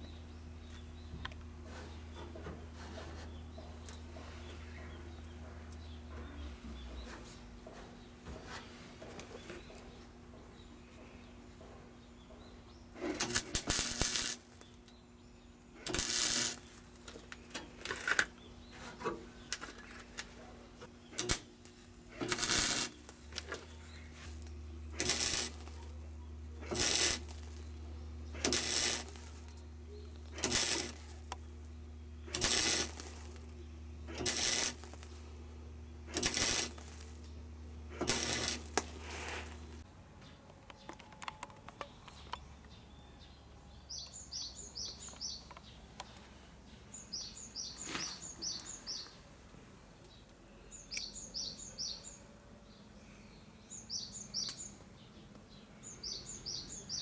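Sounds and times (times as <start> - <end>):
steady electrical hum: 0.0 - 57.0
welder tacking sheet metal: 13.0 - 14.9, 15.8 - 20.3, 21.0 - 35.4, 36.0 - 39.8.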